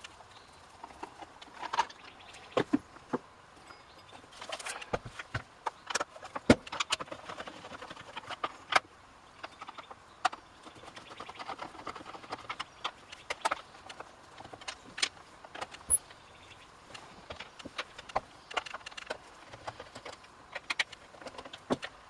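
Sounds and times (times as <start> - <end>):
hand tools clicking and knocking: 3.7 - 16.2, 16.9 - 22.0.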